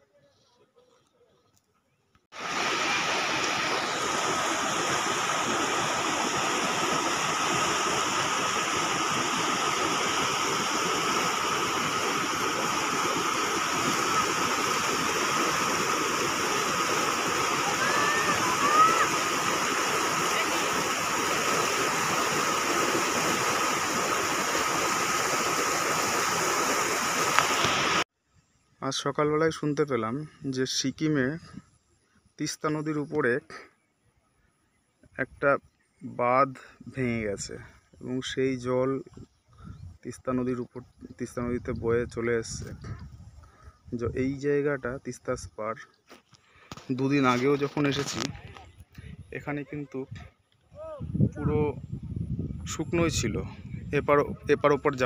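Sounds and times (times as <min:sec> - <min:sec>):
floodwater rushing: 0:02.4 - 0:28.0.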